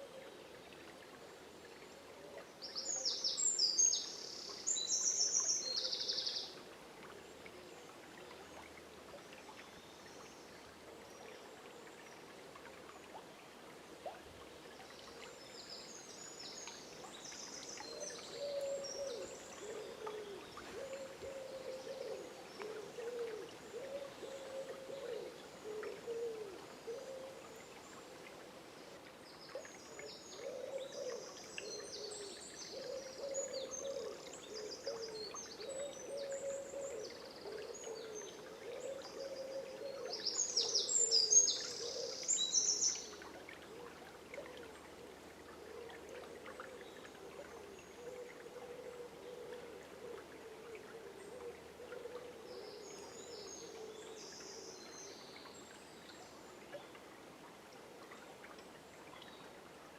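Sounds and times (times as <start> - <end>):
songbird chirping: 14.8 - 57.0.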